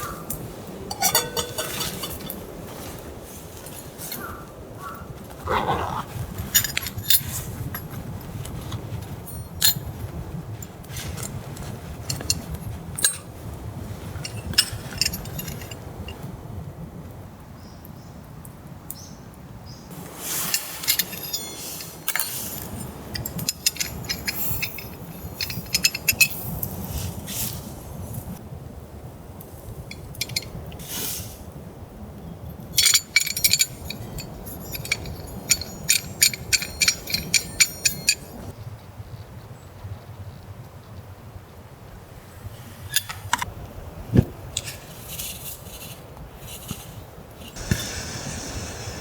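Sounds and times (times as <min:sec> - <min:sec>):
metal and glass clinks: 0:00.9 - 0:02.4, 0:06.5 - 0:07.9, 0:09.3 - 0:09.9, 0:12.1 - 0:13.4, 0:14.2 - 0:16.2, 0:20.4 - 0:26.8, 0:29.9 - 0:30.6, 0:32.6 - 0:38.5.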